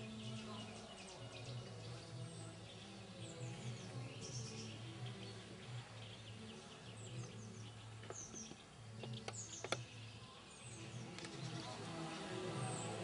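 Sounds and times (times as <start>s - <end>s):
songbirds chirping: 0.0s - 13.0s
sharp clicks: 8.3s - 9.9s.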